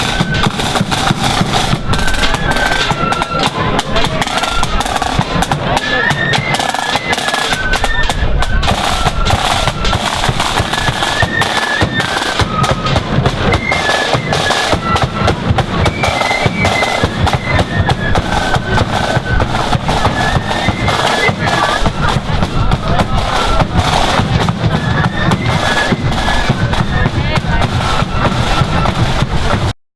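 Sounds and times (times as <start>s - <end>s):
flutes playing high melody: 0.0s - 29.7s
rapid snare drumming: 0.0s - 29.7s
bass drum beats: 12.4s - 13.7s, 14.7s - 29.7s.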